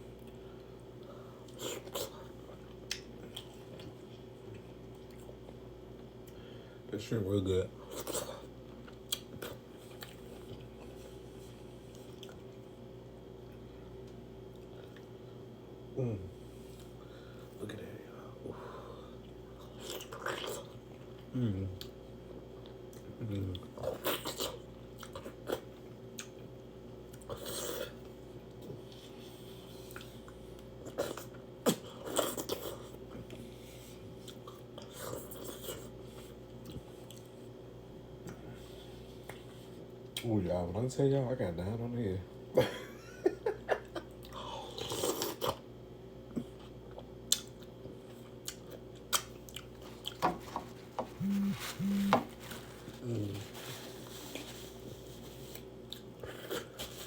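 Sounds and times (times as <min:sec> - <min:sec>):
low background hum: 0:00.0 - 0:57.0
person chewing: 0:01.5 - 0:05.6, 0:07.9 - 0:11.0, 0:44.1 - 0:45.6, 0:46.5 - 0:50.2, 0:51.2 - 0:52.3, 0:55.4 - 0:56.9
faint chewing: 0:07.9 - 0:12.6, 0:27.1 - 0:37.5, 0:46.3 - 0:57.0.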